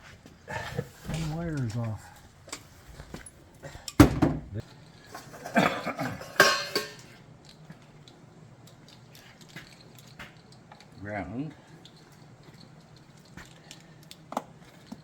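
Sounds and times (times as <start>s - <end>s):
metal tools clinking: 4.8s - 7.2s.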